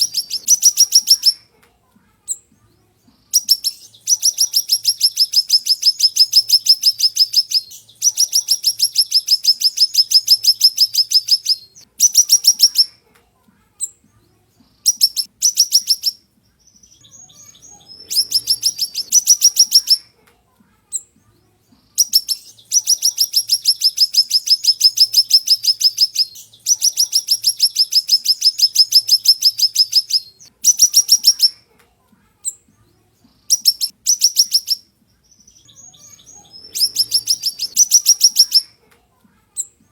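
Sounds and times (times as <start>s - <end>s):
bird singing high trills: 0.0s - 1.4s, 3.4s - 12.9s, 14.9s - 20.0s, 22.0s - 31.6s, 33.5s - 38.7s.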